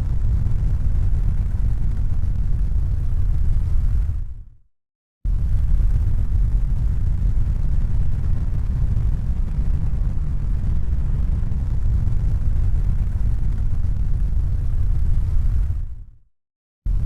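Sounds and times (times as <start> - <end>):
loud low rumbling noise: 5.3 - 16.1.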